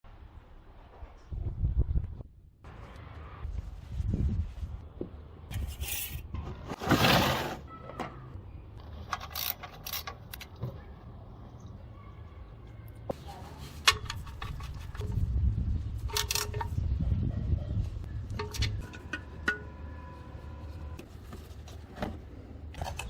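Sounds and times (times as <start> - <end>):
metal tools clinking and scraping: 5.5 - 6.3.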